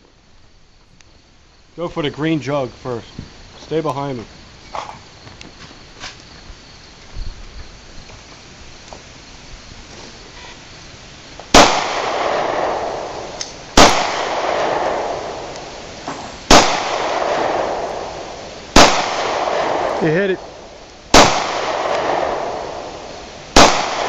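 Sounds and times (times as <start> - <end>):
pistol shots with echoing tail: 11.5 - 15.5, 16.5 - 24.0.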